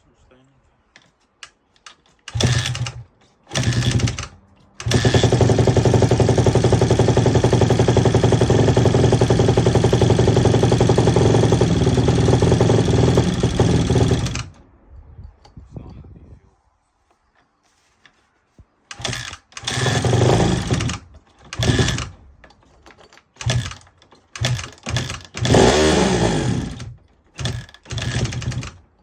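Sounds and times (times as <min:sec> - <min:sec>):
dirt bike engine running: 0:02.3 - 0:14.6, 0:19.0 - 0:22.1, 0:23.4 - 0:23.8, 0:24.4 - 0:28.7.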